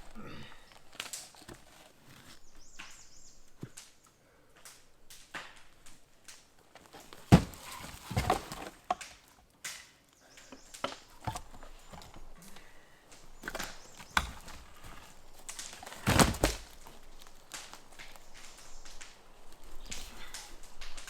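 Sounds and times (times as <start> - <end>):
irregular knocks and thuds: 7.1 - 9.0.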